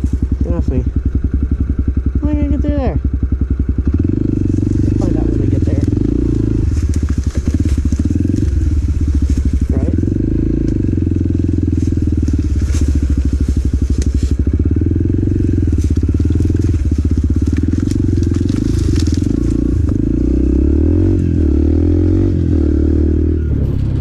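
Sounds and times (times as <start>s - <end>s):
motorcycle engine running: 0.0s - 24.0s
short crackles: 4.7s - 10.8s, 11.5s - 14.6s, 15.4s - 20.0s.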